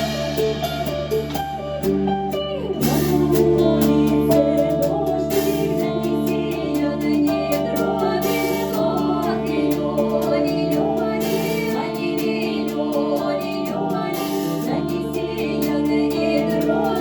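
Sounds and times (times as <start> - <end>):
held instrumental tones: 0.0 - 17.0
light regular beat: 0.0 - 17.0
woman singing: 1.8 - 17.0.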